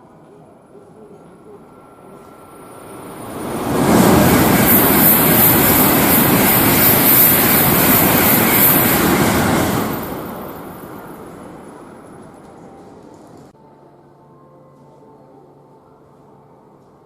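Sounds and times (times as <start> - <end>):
high-speed train rushing roar: 0.0 - 13.5.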